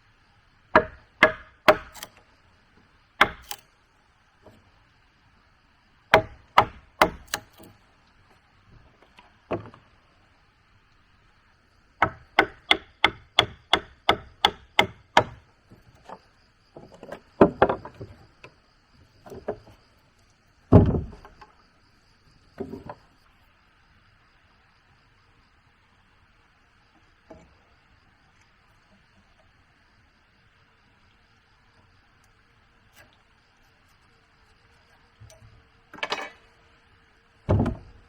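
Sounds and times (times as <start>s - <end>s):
tool striking wood: 0.7s - 2.2s, 3.2s - 3.6s, 6.1s - 7.7s, 12.0s - 15.4s, 20.7s - 21.4s, 37.5s - 38.0s.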